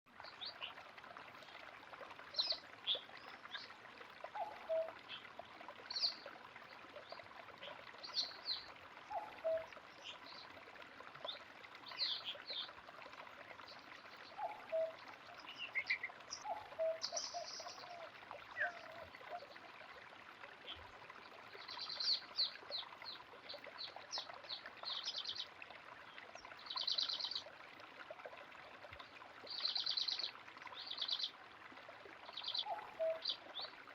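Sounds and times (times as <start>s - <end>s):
running water flowing: 0.1s - 33.9s
songbirds calling: 4.4s - 5.3s, 7.0s - 10.5s, 11.3s - 12.8s, 13.6s - 19.6s, 21.6s - 25.5s, 26.1s - 27.5s, 29.5s - 31.3s, 32.2s - 33.8s.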